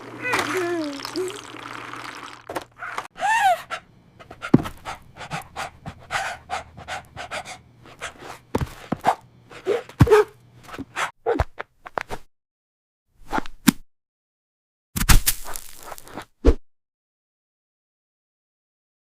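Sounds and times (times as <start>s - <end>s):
dog whining: 2.8s - 3.9s
dog panting: 4.2s - 8.4s.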